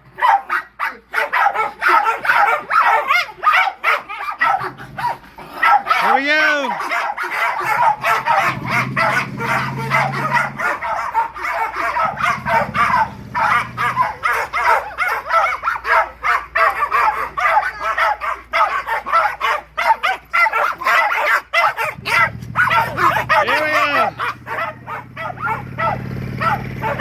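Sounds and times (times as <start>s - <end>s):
dogs barking and yipping: 0.0s - 27.0s.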